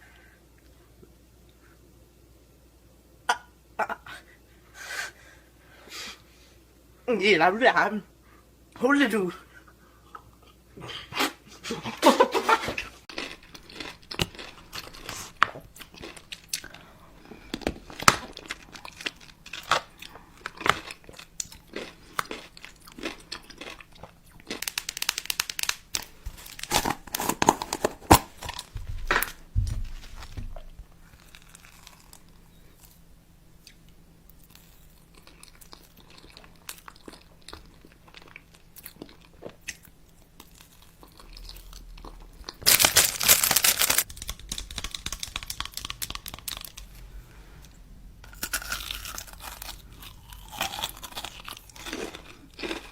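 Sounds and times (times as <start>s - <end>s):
crunchy food being chewed: 12.8s - 52.9s
packaging crinkling and tearing: 24.4s - 32.3s, 42.6s - 47.0s, 48.3s - 52.9s.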